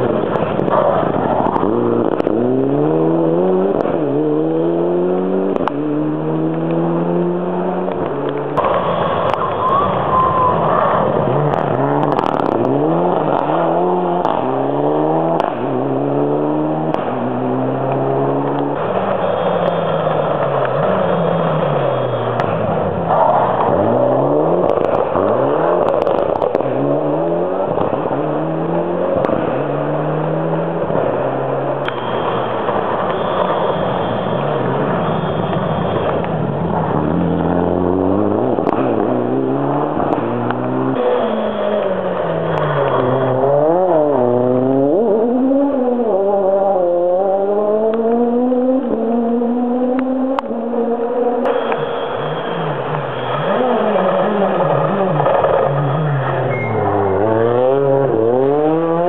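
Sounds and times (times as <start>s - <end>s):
racing car engine revving: 0.0s - 59.0s.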